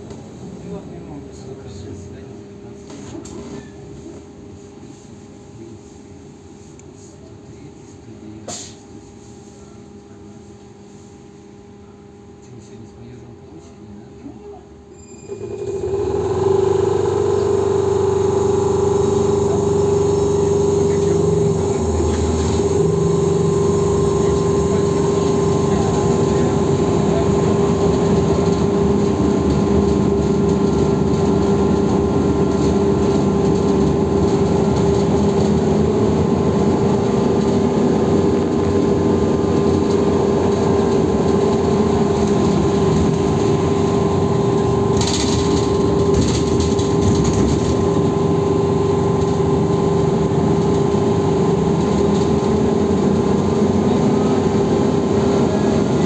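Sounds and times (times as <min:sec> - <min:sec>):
trolleybus electrical whine: 0:00.0 - 0:04.2, 0:15.0 - 0:56.0
road and running noise: 0:15.6 - 0:56.0.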